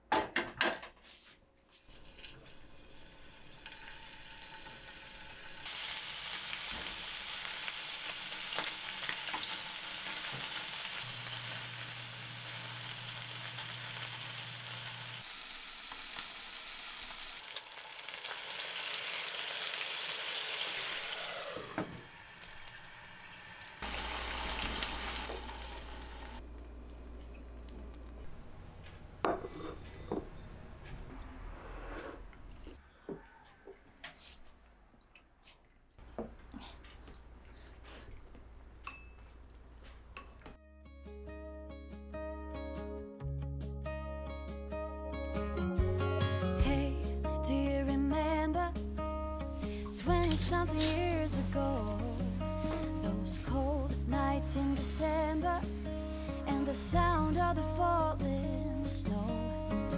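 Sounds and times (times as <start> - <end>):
food sizzling in hot oil: 2.0 - 26.4.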